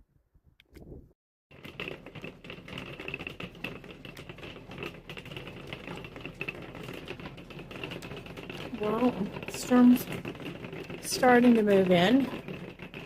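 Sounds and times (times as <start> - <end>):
hail pelting down: 1.6 - 13.0.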